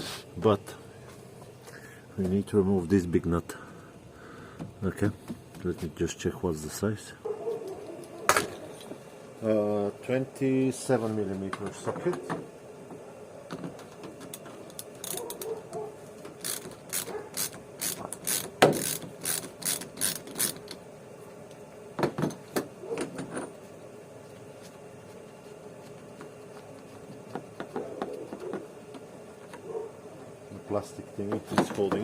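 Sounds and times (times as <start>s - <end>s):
socket ratchet clicking: 16.4s - 20.8s.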